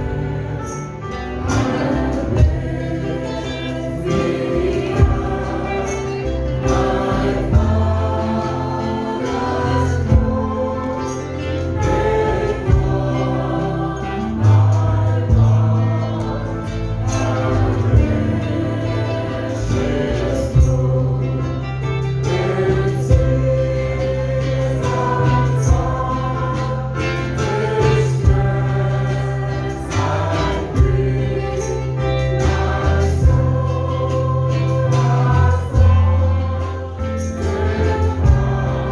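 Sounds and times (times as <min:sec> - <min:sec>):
bass line: 0:00.0 - 0:38.9
choir singing: 0:00.0 - 0:38.9
drum beats: 0:32.4 - 0:33.8.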